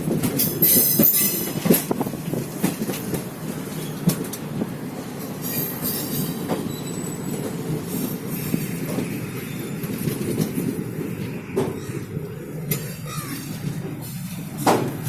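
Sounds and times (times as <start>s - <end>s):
train coaches rumbling: 0.0s - 15.0s
high wheel squeal: 5.4s - 10.0s, 12.8s - 14.2s
wheel knocks over rail joints: 13.4s - 15.0s.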